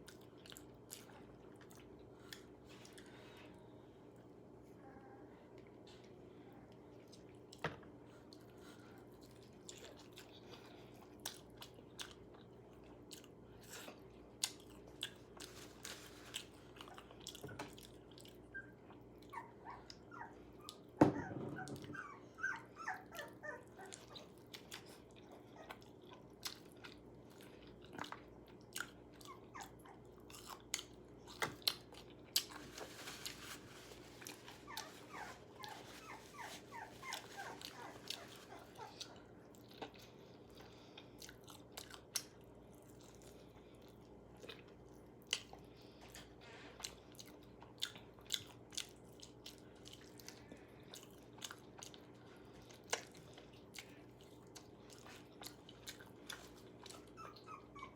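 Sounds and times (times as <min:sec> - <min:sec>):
crunchy chewing of fried chicken: 0:00.0 - 0:04.6, 0:05.7 - 0:21.0, 0:21.6 - 0:57.9
dog whining: 0:18.4 - 0:24.4, 0:29.2 - 0:30.1, 0:34.6 - 0:39.2, 0:56.9 - 0:57.9.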